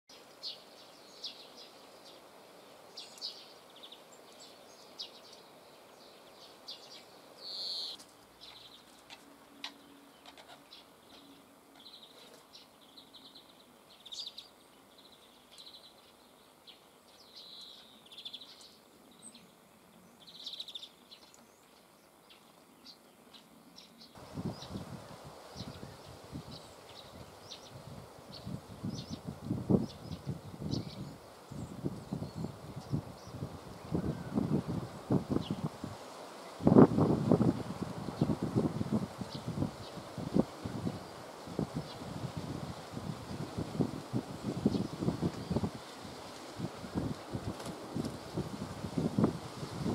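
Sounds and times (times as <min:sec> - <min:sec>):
birds chirping: 0:00.1 - 0:35.8, 0:36.4 - 0:46.0.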